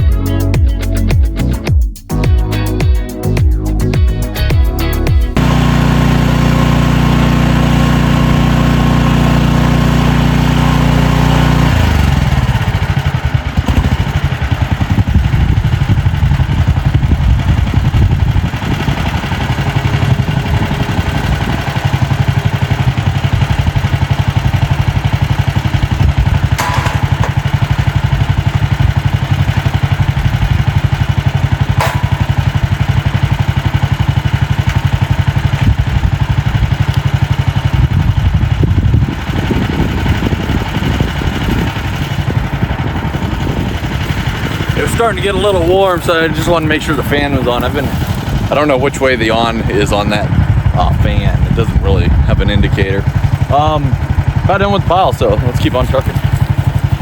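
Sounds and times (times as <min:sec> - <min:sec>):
skid steer engine running: 0:03.7 - 0:57.0.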